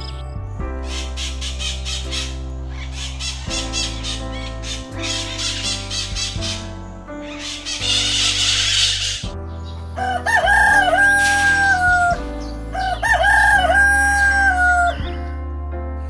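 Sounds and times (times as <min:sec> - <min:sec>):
background music: 0:00.0 - 0:16.0
rooster crowing: 0:10.0 - 0:15.0.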